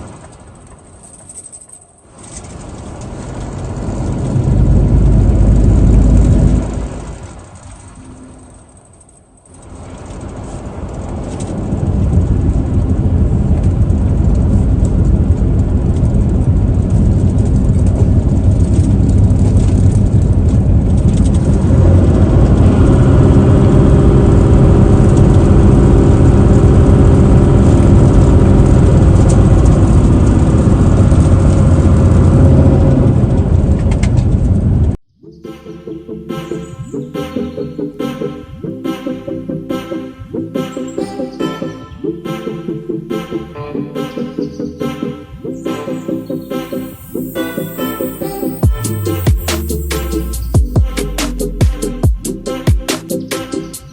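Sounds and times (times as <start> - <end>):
truck engine running: 2.4 - 35.0, 45.9 - 53.9.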